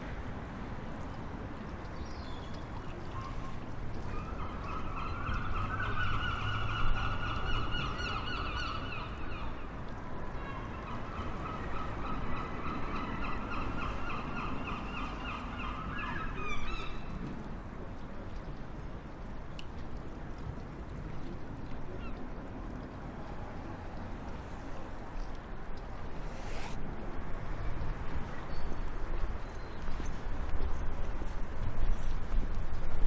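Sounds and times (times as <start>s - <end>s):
outdoor background hiss: 18.7s - 28.1s.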